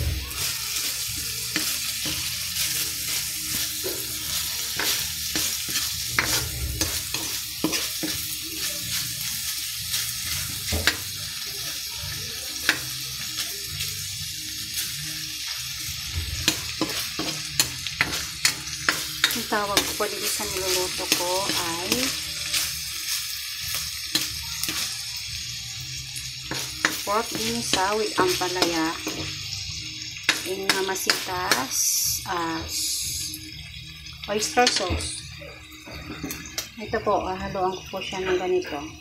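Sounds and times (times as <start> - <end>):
pork sizzling in pan: 0.0 - 39.0
spatula scraping pan: 0.2 - 8.2.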